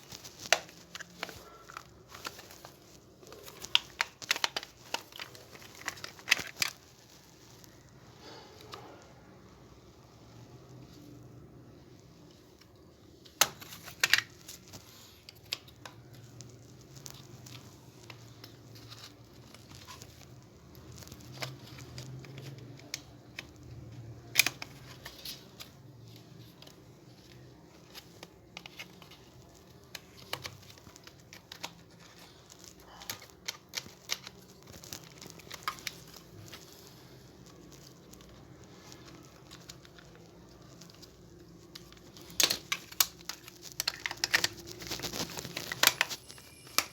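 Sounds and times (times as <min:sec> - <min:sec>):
plastic clicks and rattles: 0:41.7 - 0:46.9.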